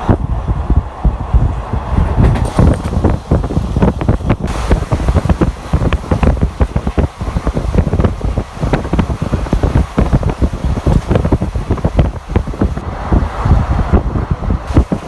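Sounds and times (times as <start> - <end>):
wind buffeting microphone: 0.0 - 15.0
train wheels clattering: 0.7 - 7.9.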